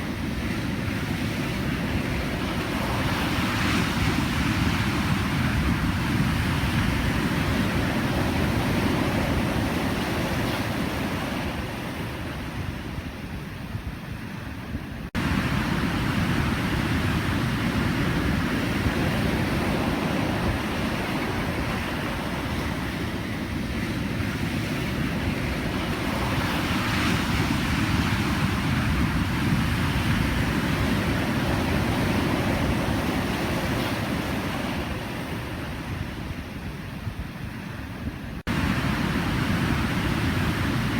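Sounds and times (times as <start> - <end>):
ocean waves breaking: 0.0 - 13.4, 14.6 - 40.9.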